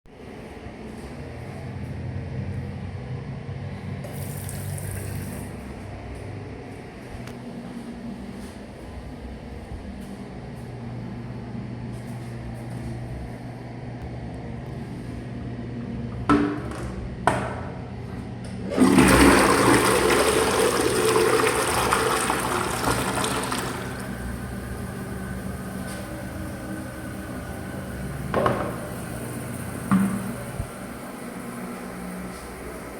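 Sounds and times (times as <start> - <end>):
toilet cistern refilling: 4.0 - 5.6, 18.7 - 32.9
toilet flushing: 4.0 - 5.6, 18.6 - 32.9.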